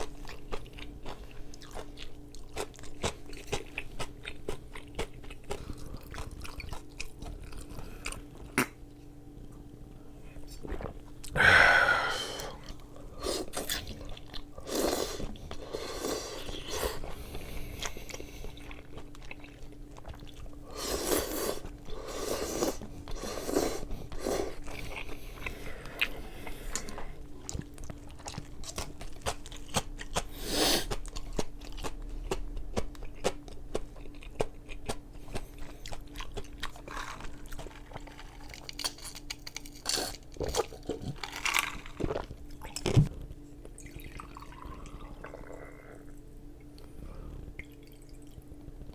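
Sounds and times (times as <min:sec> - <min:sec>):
chewing and crunching food: 0:00.0 - 0:09.8, 0:12.4 - 0:48.9.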